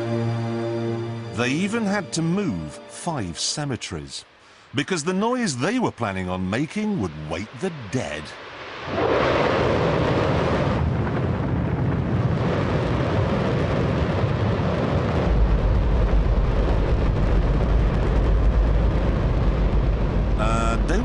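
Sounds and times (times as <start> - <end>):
rocket engine roaring: 6.6 - 21.0.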